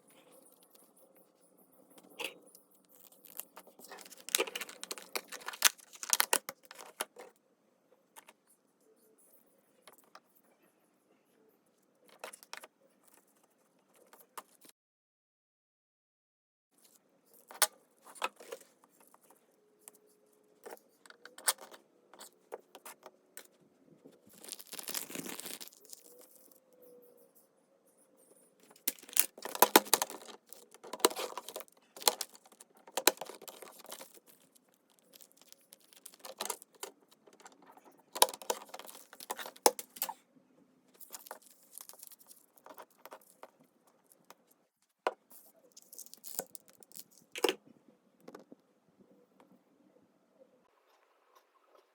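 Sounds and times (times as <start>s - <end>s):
paper rustling: 2.9s - 7.0s, 24.2s - 26.5s, 28.6s - 40.2s, 41.0s - 43.5s.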